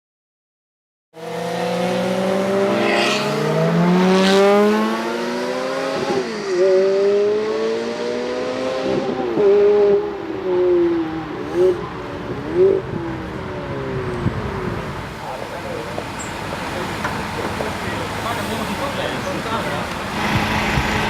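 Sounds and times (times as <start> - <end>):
sports car engine accelerating: 1.2 - 14.9, 19.9 - 21.0.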